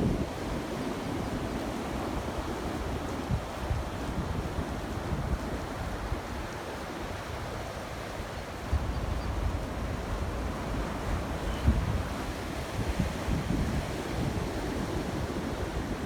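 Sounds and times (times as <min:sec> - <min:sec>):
wind buffeting microphone: 0:08.6 - 0:16.0.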